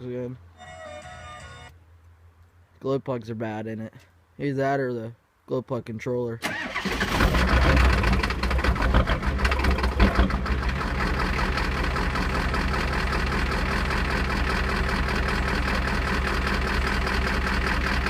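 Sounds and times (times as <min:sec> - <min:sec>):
diesel engine idling: 0:06.5 - 0:18.0.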